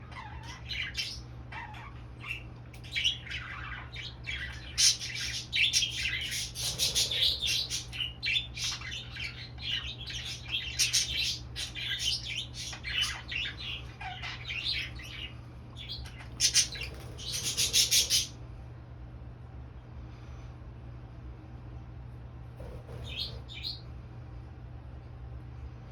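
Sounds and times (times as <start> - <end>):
budgerigar chattering and warbling: 0.0 - 18.3, 22.6 - 23.8.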